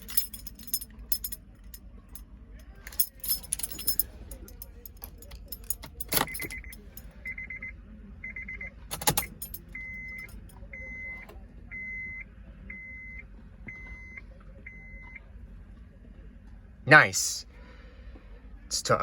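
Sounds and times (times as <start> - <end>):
key rattle and click in ignition: 0.0 - 1.8, 2.6 - 7.2, 8.9 - 11.4
keys jangling: 0.0 - 1.8, 2.7 - 7.1, 8.9 - 10.5
dashboard warning chime beeps: 5.2 - 15.2.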